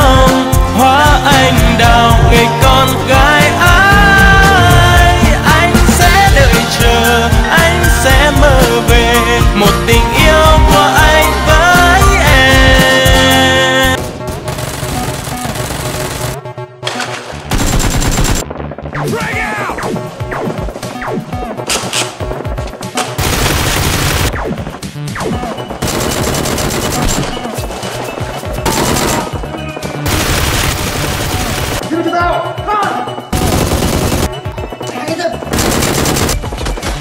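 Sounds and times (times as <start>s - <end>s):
automatic gunfire bursts: 14.5s - 16.4s, 17.5s - 18.4s, 23.2s - 24.4s, 25.8s - 27.4s, 28.7s - 29.4s, 30.0s - 31.8s, 33.4s - 34.4s, 35.5s - 36.4s.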